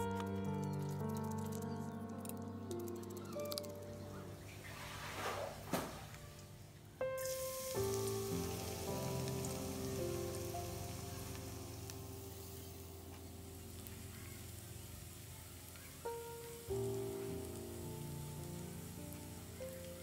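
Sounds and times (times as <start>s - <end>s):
slow sustained chords music: 0.0s - 5.2s, 6.0s - 15.3s, 16.0s - 20.0s
garlic sizzling in hot oil: 7.2s - 20.0s.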